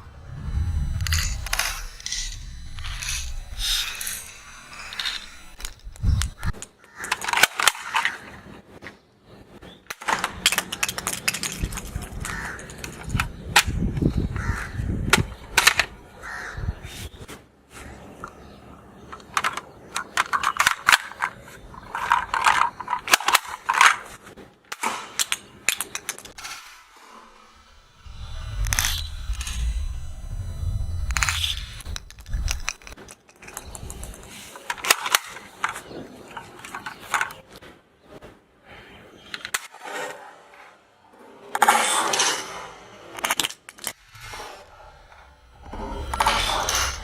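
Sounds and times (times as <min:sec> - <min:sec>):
toy gun plastic clicks and rattles: 0:04.8 - 0:08.4, 0:09.9 - 0:14.1, 0:15.1 - 0:15.9, 0:19.0 - 0:26.4, 0:32.0 - 0:37.6, 0:43.1 - 0:44.0.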